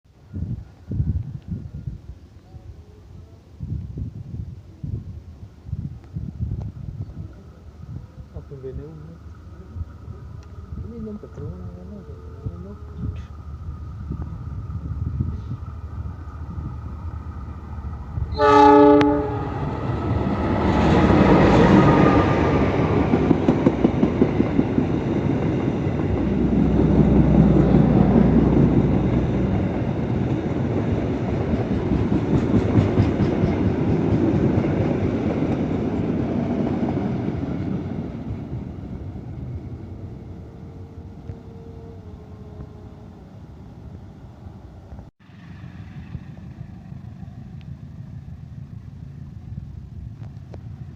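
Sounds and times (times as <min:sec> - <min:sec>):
train engine rumble: 0:00.2 - 0:50.9
diesel locomotive horn blast: 0:18.3 - 0:19.8.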